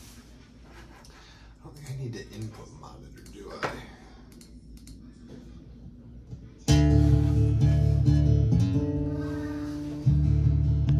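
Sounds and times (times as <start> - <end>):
guitar chord strummed and ringing: 6.7 - 10.9.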